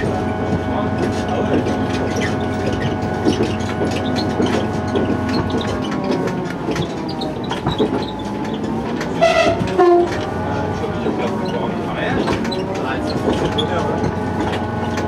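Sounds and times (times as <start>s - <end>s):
train rumbling along track: 0.0s - 15.0s
wheels clicking on rails: 0.0s - 15.0s
train horn two-note blast: 9.2s - 10.2s.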